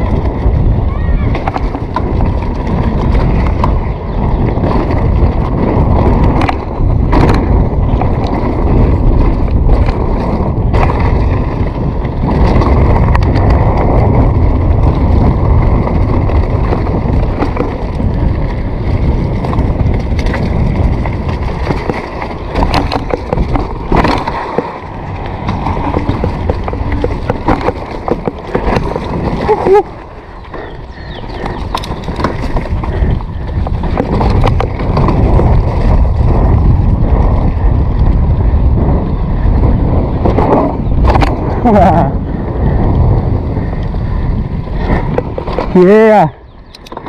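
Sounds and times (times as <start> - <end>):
wheels rumbling over rough surface: 0.0 - 47.0
wind buffeting microphone: 0.0 - 47.0
sharp knocks and rattles: 19.4 - 29.7, 31.4 - 36.2.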